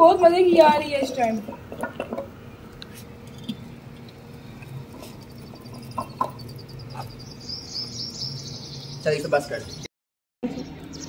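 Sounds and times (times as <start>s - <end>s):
faint hum: 0.0s - 11.0s
small bird chirping: 5.0s - 9.9s.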